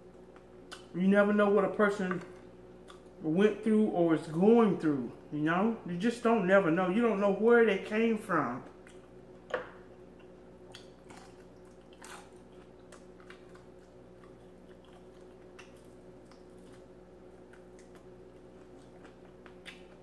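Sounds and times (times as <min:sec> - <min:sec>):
faint steady hum: 0:00.0 - 0:20.0
wet chewing clicks and smacks: 0:00.2 - 0:00.9, 0:02.4 - 0:03.2, 0:08.8 - 0:09.1, 0:10.1 - 0:20.0.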